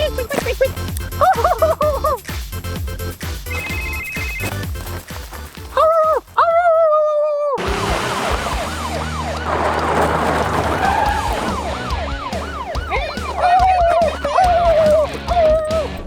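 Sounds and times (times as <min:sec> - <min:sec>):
low engine rumble: 0:07.6 - 0:16.0
police siren yelping: 0:07.7 - 0:16.0.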